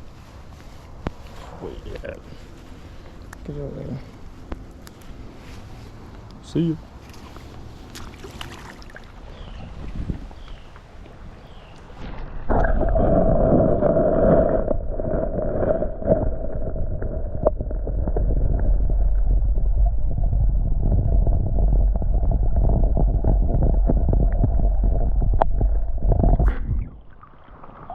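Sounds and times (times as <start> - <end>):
creek water rushing and gurgling: 7.0 - 10.1.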